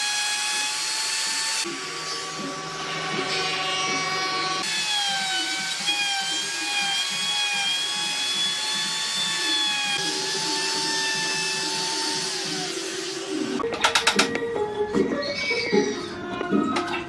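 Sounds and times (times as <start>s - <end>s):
power tool motor whining: 0.0s - 2.4s, 4.6s - 13.6s.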